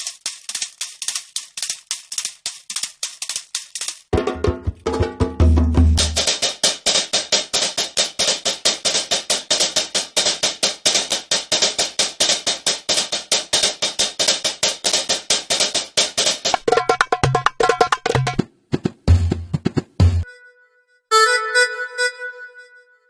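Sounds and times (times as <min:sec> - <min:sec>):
fast percussion loop: 0:00.0 - 0:20.2
pitched instrument phrase: 0:04.2 - 0:06.2.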